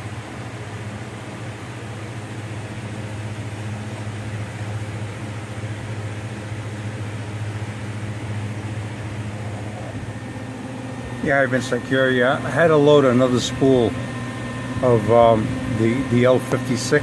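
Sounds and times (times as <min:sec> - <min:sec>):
low hum with fan noise: 0:00.0 - 0:17.0.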